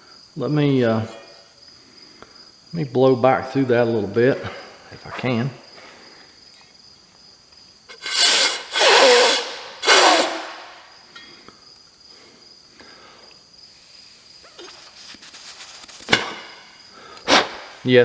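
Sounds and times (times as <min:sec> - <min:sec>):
puffs of air blown by mouth: 0:07.9 - 0:11.0, 0:16.9 - 0:17.8.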